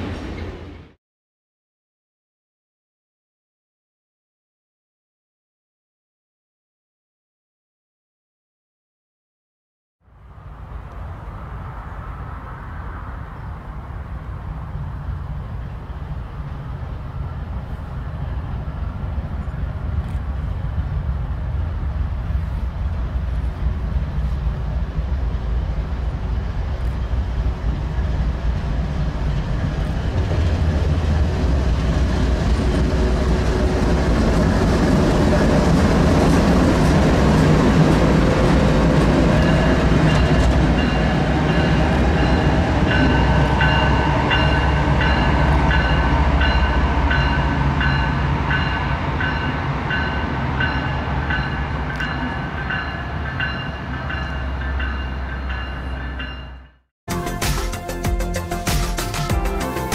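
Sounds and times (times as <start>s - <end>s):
diesel locomotive engine rumble: 0.0s - 1.0s, 10.0s - 59.9s
train wheel noise: 10.3s - 58.0s.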